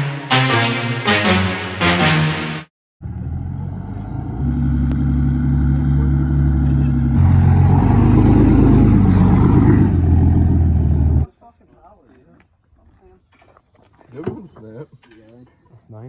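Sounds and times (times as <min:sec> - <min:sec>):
vehicle engine running loudly: 0:03.0 - 0:11.3.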